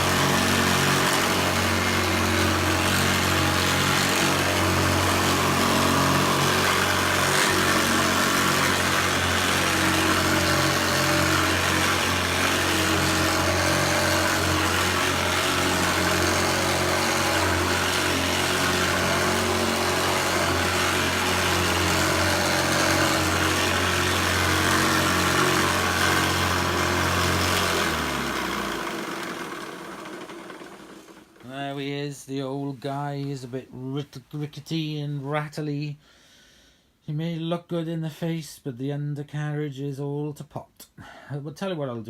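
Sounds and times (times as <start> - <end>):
vacuum motor winding down: 0.0 - 31.6
vacuum cleaner rattly hum: 0.0 - 31.8.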